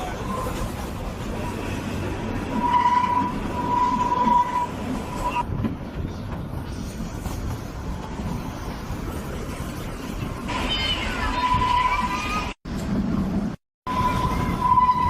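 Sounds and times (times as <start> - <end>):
train rumbling: 0.0 - 15.0
high wheel squeal: 1.3 - 5.5, 10.5 - 12.6, 13.9 - 15.0.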